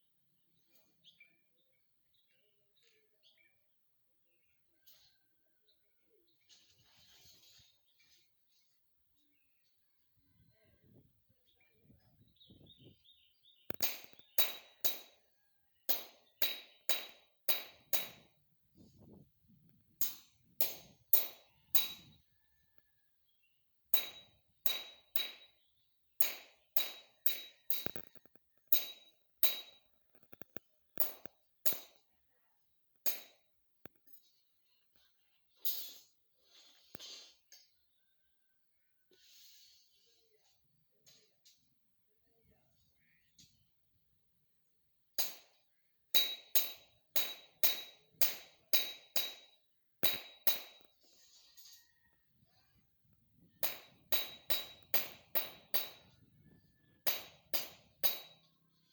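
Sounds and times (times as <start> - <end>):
metal tool striking hard object: 13.7 - 15.2, 15.9 - 18.3, 20.0 - 22.2, 24.0 - 28.1, 28.7 - 29.9, 31.0 - 32.0, 33.1 - 33.4, 46.2 - 50.9, 53.6 - 56.2, 57.0 - 58.5
sharp metallic strikes: 13.7 - 15.2, 28.7 - 29.8.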